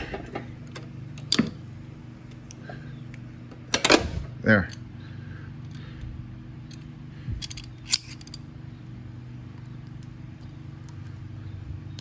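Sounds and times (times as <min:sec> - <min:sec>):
steady low hum: 0:00.0 - 0:12.0
metal clicks of hand tools: 0:07.4 - 0:08.4.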